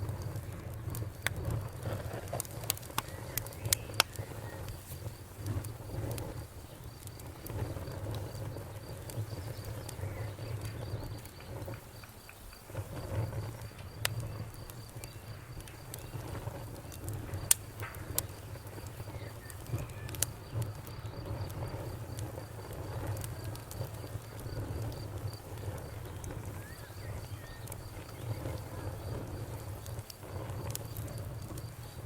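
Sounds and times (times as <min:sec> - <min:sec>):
campfire crackling and popping: 0:00.0 - 0:32.0
insect chirping: 0:03.0 - 0:32.0.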